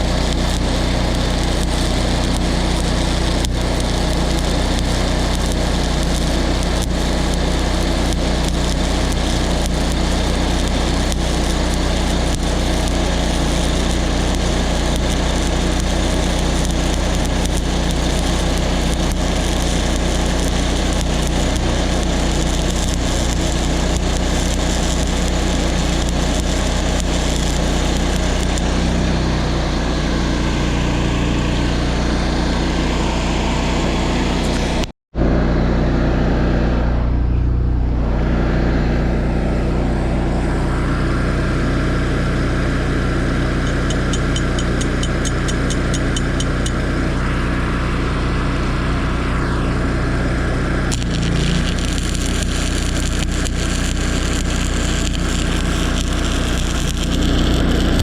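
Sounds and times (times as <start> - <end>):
welding arc crackle: 0.0 - 29.1, 34.4 - 34.9, 43.0 - 47.8, 50.6 - 58.0
welding machine engine running: 0.0 - 35.9, 38.2 - 58.0.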